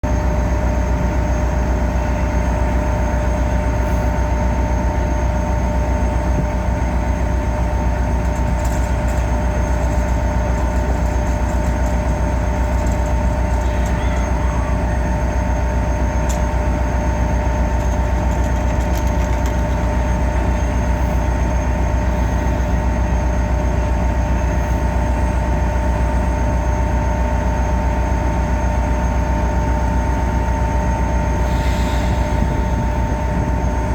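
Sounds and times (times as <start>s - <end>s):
train rumbling: 0.0s - 33.9s.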